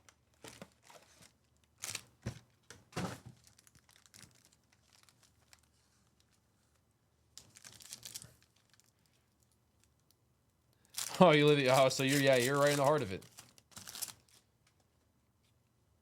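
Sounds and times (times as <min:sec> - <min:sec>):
wrapper crinkling: 0:00.3 - 0:02.1, 0:03.4 - 0:06.3, 0:07.4 - 0:09.2, 0:10.9 - 0:14.5
wrapper tearing: 0:00.4 - 0:02.1, 0:03.4 - 0:05.7, 0:07.4 - 0:09.0, 0:10.9 - 0:14.5.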